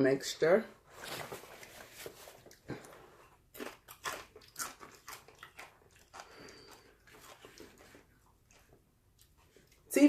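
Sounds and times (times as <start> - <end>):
chip crunching while chewed: 2.4 - 9.9.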